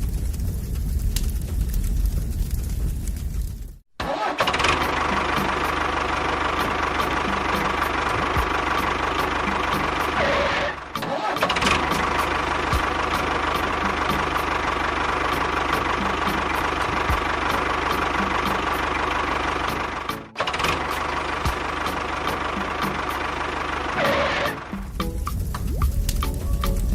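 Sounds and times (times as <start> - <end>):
engine idling with knocking tick: 4.5 - 10.2, 11.4 - 26.9.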